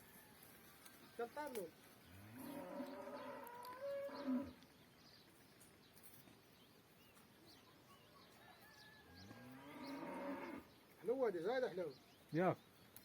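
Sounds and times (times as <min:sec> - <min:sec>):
cow mooing: 0:02.2 - 0:04.6, 0:09.3 - 0:10.6.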